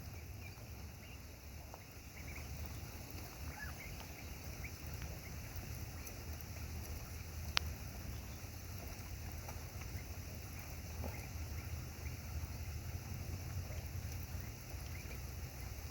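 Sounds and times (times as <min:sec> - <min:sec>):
ducks splashing in water: 0:00.0 - 0:15.9
rain: 0:00.0 - 0:15.9
steady low rumble: 0:00.0 - 0:15.9
sharp tick: 0:07.5 - 0:07.7.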